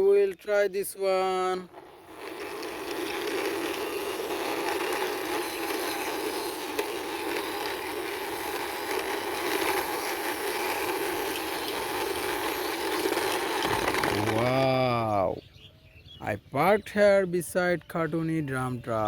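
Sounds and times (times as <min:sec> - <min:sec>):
toy wheels rolling on ground: 0:00.8 - 0:15.4.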